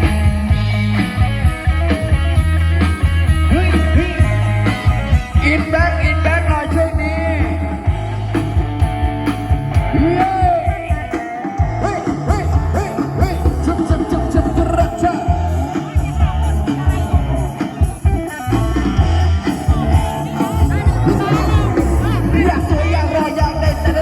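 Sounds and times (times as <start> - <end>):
live band music: 0.0 - 24.0
person singing: 9.8 - 24.0.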